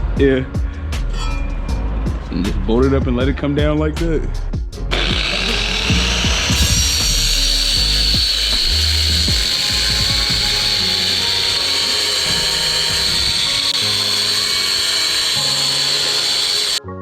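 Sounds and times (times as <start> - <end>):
background music with bass: 0.0 - 17.0
power tool whining: 4.9 - 16.8.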